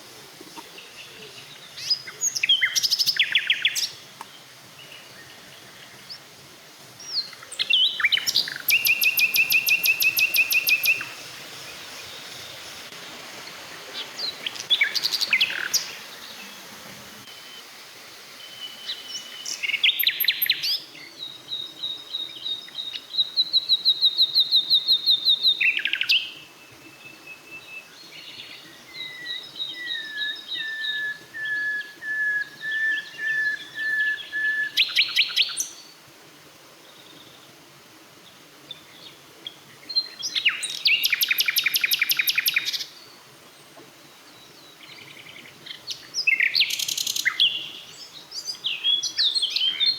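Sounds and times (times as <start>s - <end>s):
songbirds trilling: 0.0s - 35.9s.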